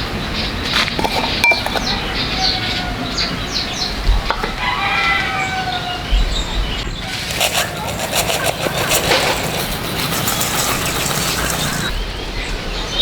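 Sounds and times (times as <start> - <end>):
rooster crowing: 4.4 - 6.1.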